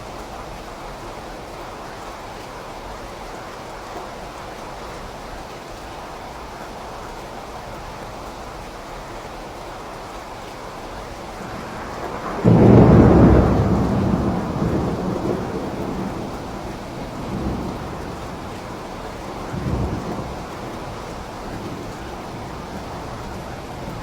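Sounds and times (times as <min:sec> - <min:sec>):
steady rain: 0:00.0 - 0:24.0
rolling thunder: 0:11.3 - 0:24.0
loud thunderclap: 0:11.4 - 0:24.0.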